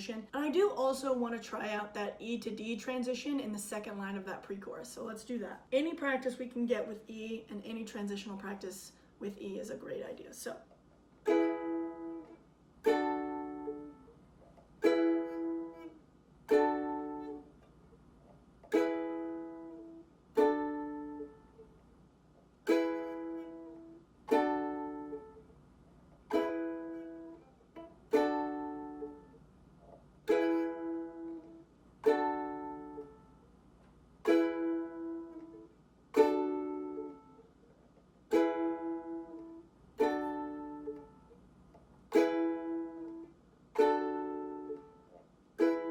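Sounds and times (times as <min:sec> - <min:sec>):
ukulele strummed slowly: 0:11.2 - 0:21.8, 0:22.4 - 0:33.4, 0:34.2 - 0:37.6, 0:38.3 - 0:41.4, 0:42.0 - 0:45.9.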